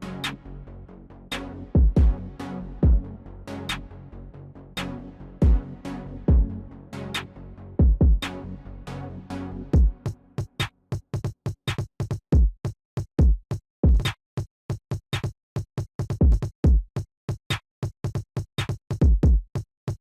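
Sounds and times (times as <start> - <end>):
electronic drum-machine beat: 1.8 - 2.2, 2.8 - 3.0, 5.4 - 5.6, 6.3 - 6.5, 7.8 - 8.3, 9.8 - 12.6, 13.2 - 14.1, 16.0 - 17.0, 18.1 - 20.0.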